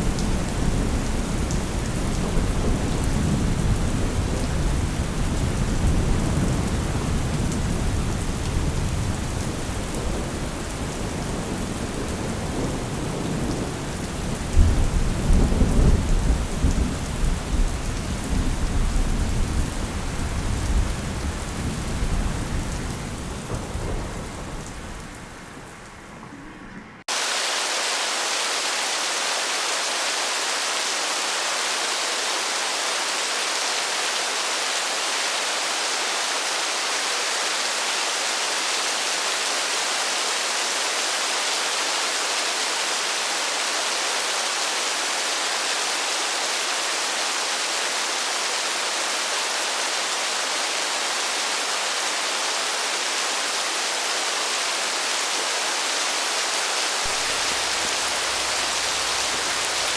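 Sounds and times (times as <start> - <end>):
heavy rain hiss: 0.0 - 26.3, 27.0 - 59.9
thunderstorm: 0.0 - 27.1.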